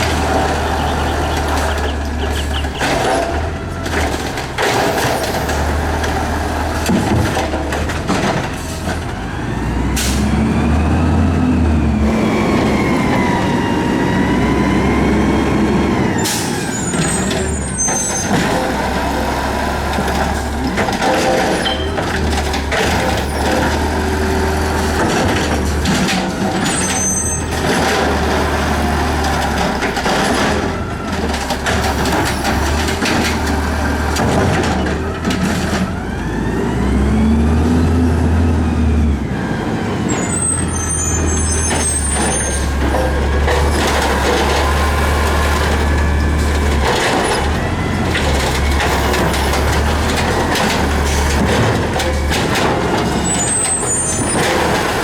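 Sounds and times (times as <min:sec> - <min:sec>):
garbage truck engine revving: 0:00.0 - 0:55.0.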